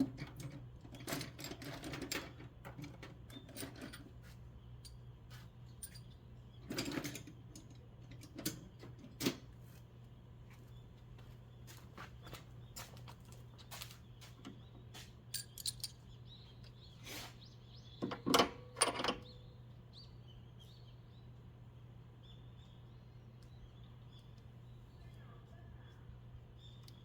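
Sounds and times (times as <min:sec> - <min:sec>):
metal tools clicking and clinking: 0:05.8 - 0:08.6, 0:15.3 - 0:16.0.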